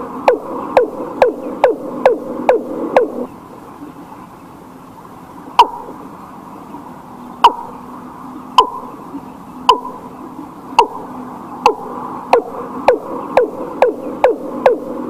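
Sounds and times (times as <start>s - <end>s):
bird calling falling notes: 0.0s - 4.0s, 5.5s - 6.2s, 7.2s - 15.0s.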